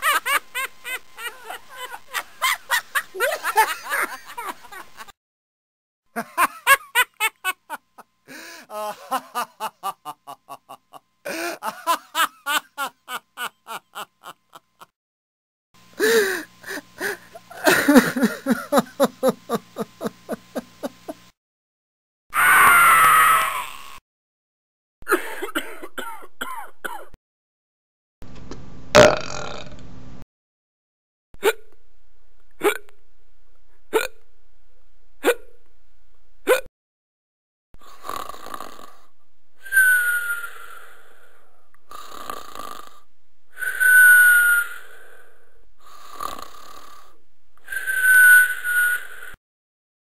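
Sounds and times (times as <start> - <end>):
man laughing: 0.0 - 5.1, 6.2 - 14.9, 16.0 - 21.2, 25.1 - 25.8
man sobbing and crying: 6.2 - 14.9, 16.0 - 20.9
man screaming: 22.4 - 23.8
man coughing: 25.2 - 27.1
man belching: 29.0 - 29.7.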